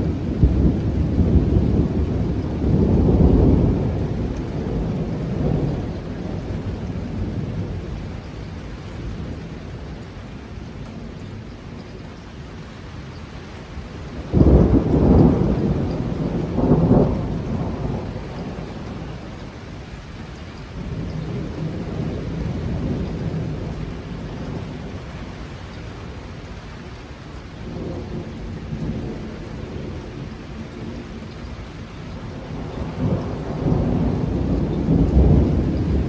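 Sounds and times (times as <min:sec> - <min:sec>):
thunder rumbling: 0:00.0 - 0:10.0, 0:13.8 - 0:20.0, 0:20.7 - 0:26.6, 0:27.6 - 0:36.0
heavy rain: 0:00.0 - 0:36.0.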